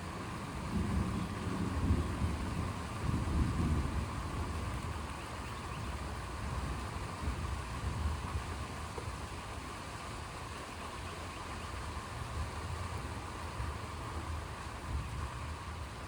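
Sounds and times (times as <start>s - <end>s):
low fluctuating storm rumble: 0.0s - 8.8s.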